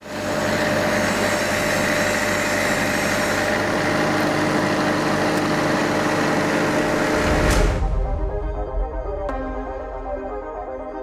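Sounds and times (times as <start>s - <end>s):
engine idling: 0.0s - 7.9s.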